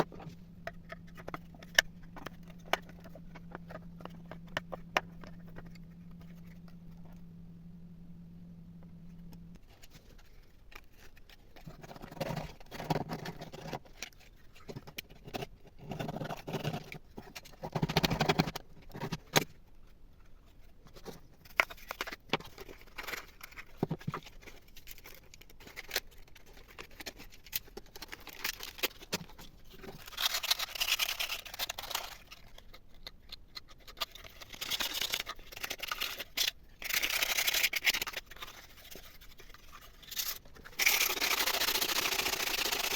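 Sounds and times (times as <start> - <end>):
scraping and rubbing: 0.0 - 7.3, 20.4 - 42.9.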